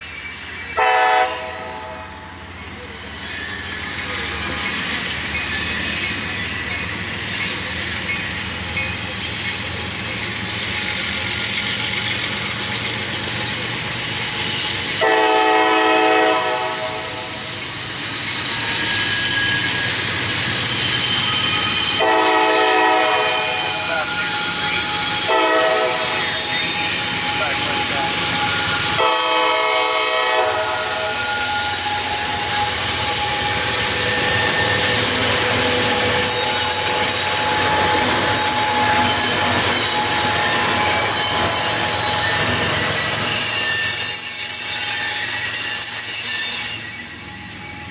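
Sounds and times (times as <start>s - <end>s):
train wheels squealing on rails: 0.0s - 47.9s
locomotive air horn blasts: 0.8s - 2.1s, 15.0s - 17.3s, 22.0s - 23.8s, 25.2s - 26.3s, 29.0s - 31.1s.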